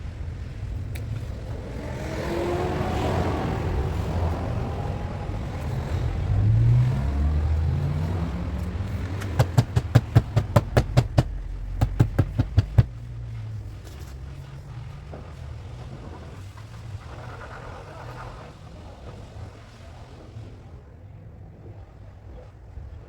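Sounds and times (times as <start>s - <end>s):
low rumble: 0.0s - 21.9s
hammer tapping car body metal: 9.2s - 12.9s.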